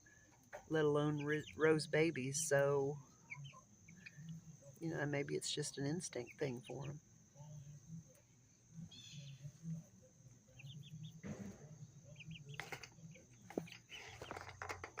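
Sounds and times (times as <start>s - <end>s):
chicks peeping: 0.0s - 15.0s
rustling: 12.5s - 15.0s.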